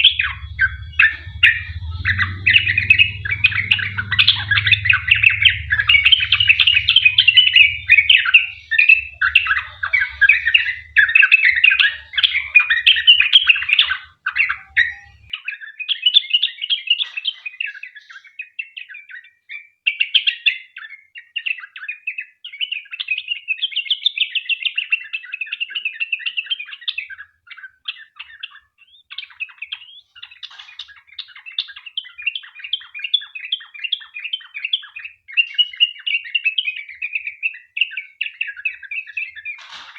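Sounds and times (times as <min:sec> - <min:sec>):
bulbul singing chattering notes: 0:00.0 - 0:15.3.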